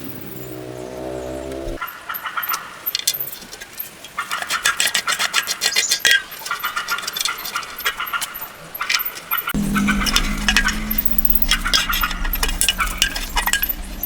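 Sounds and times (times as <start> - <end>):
small metal parts clinking: 2.5 - 14.0
low steady hum: 9.6 - 14.0.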